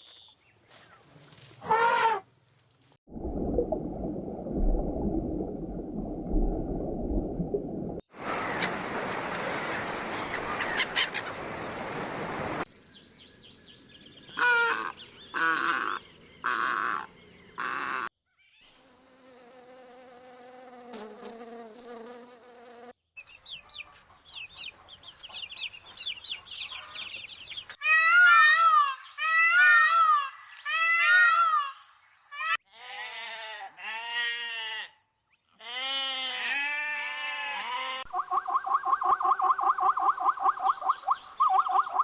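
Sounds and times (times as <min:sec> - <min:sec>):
chicken calls: 0:09.4 - 0:11.5, 0:14.3 - 0:18.1, 0:23.4 - 0:31.8
animal chirps: 0:13.0 - 0:18.1.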